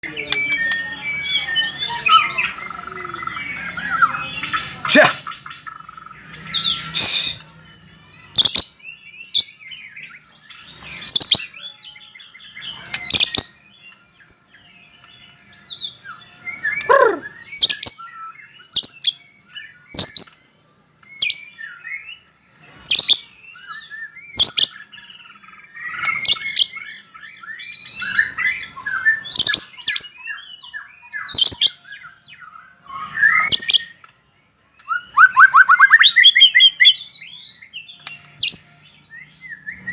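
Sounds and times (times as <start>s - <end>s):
songbird whistling and warbling: 0.0s - 20.4s, 21.0s - 22.2s, 22.8s - 34.0s, 34.8s - 39.9s.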